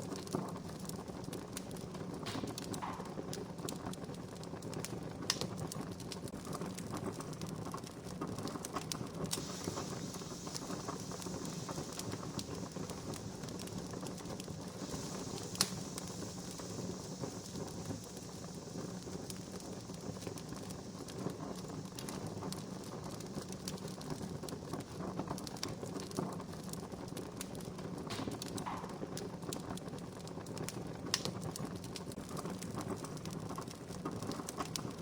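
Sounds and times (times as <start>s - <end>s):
sharp fire pops: 0.0s - 35.0s
wood campfire crackling: 0.0s - 35.0s.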